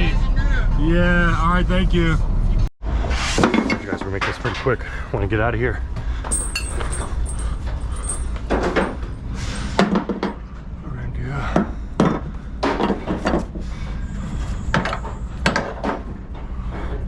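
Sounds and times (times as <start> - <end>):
steady low rumble: 0.0 - 3.1
knocks and clatters: 6.2 - 10.6, 11.5 - 13.7.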